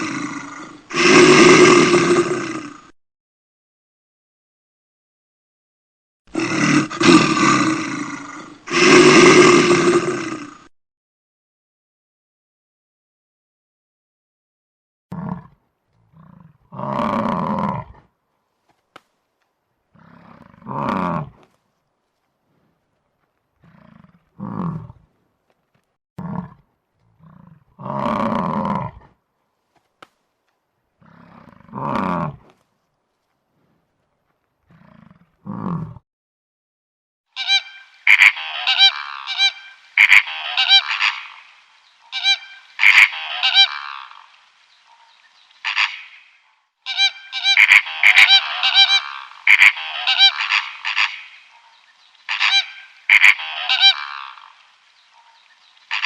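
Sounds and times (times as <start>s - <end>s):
large animal roaring calls: 0.0s - 2.9s, 6.3s - 10.7s
geese honking: 37.4s - 44.3s, 45.6s - 46.3s, 46.9s - 56.0s.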